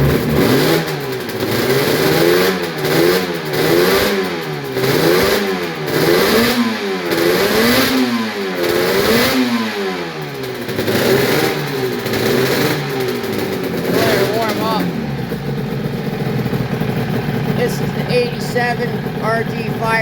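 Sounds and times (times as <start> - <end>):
two-stroke engine revving: 0.0 - 20.0.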